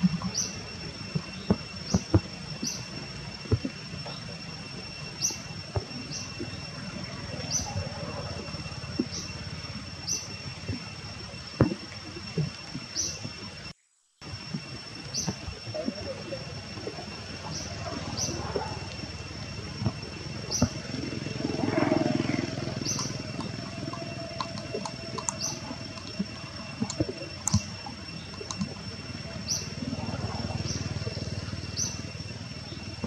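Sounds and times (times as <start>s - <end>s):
high insect whine: 0.0s - 33.0s.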